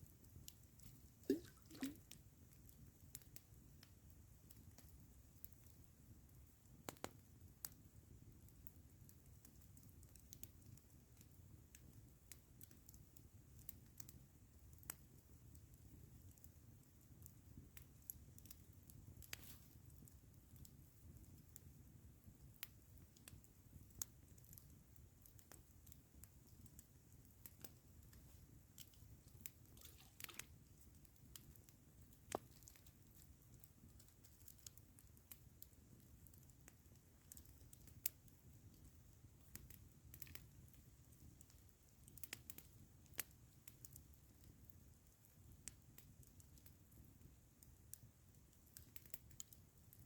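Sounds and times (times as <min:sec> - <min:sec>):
campfire crackling: 0:00.0 - 0:50.0.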